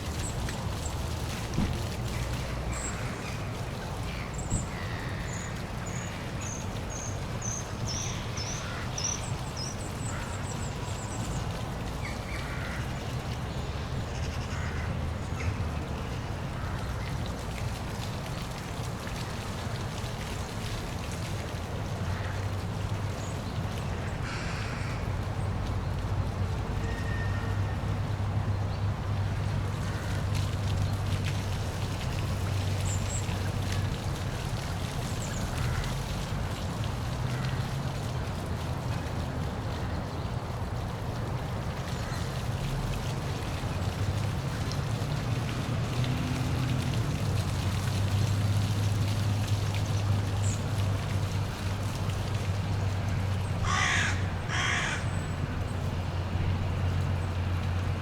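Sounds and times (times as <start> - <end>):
bird giving harsh calls: 53.6 - 55.0.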